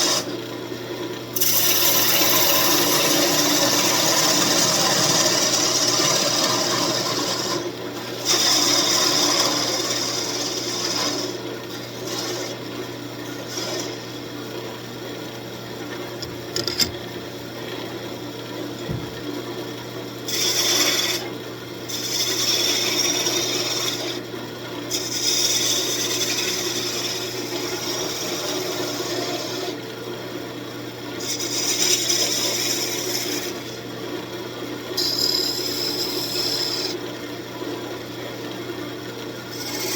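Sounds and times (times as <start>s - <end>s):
wood lathe motor hum: 0.0s - 0.3s, 1.4s - 14.2s, 20.2s - 21.3s, 21.9s - 24.3s, 24.9s - 29.8s, 31.2s - 33.8s, 35.0s - 38.6s, 39.2s - 39.9s
tool scraping spinning wood: 1.4s - 12.6s, 16.1s - 17.9s, 20.3s - 21.3s, 22.0s - 24.2s, 35.0s - 37.0s, 39.5s - 39.9s.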